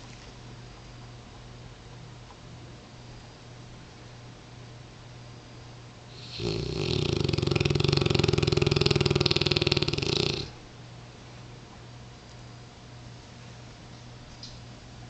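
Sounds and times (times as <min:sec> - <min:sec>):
dog snoring: 0:06.1 - 0:10.6.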